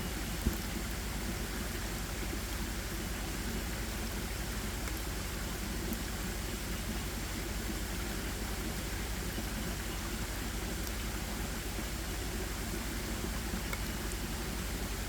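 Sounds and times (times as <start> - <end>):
faint tick: 4.8 - 5.0, 10.8 - 11.0, 13.6 - 14.0.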